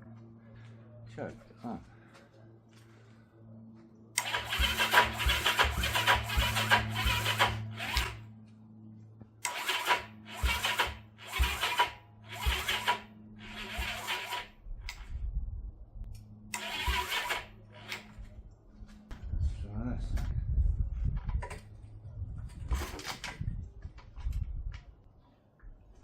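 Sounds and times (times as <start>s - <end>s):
steady low hum: 0.0s - 26.0s
motorcycle electric starter cranking: 4.2s - 8.2s, 9.4s - 15.1s, 16.5s - 18.2s.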